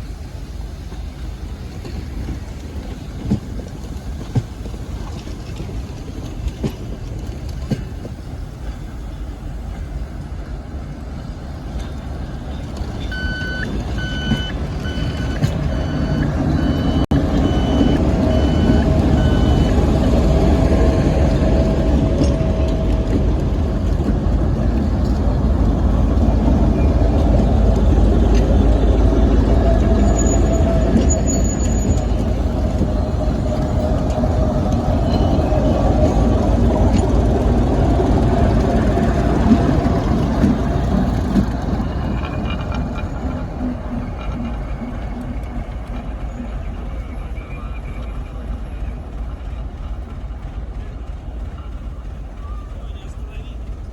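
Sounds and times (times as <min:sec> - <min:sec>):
steam locomotive rumble: 0:00.0 - 0:53.9
electronic warning signal beeping: 0:13.0 - 0:19.8.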